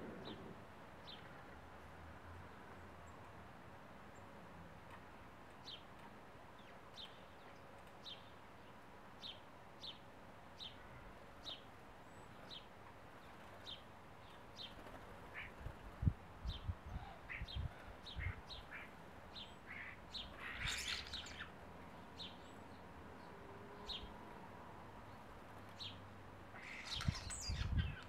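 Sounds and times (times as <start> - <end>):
small bird chirping: 16.5 - 21.6, 26.6 - 28.0.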